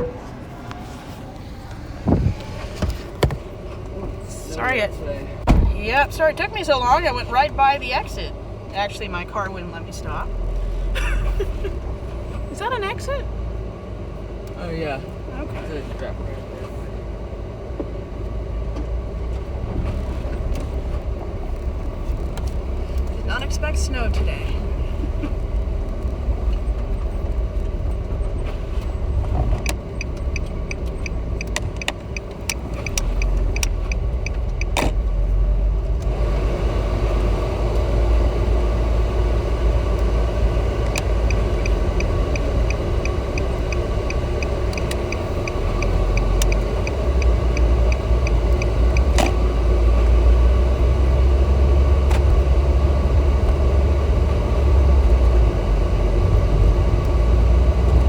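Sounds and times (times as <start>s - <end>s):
car cabin road and engine rumble: 0.0s - 58.0s
turn signal ticking: 17.8s - 58.0s
sharp clicks: 29.5s - 35.0s, 40.8s - 49.4s.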